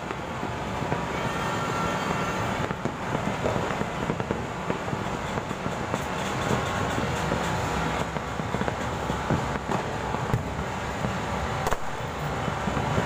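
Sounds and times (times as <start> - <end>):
distant fireworks popping and crackling: 0.0 - 13.0.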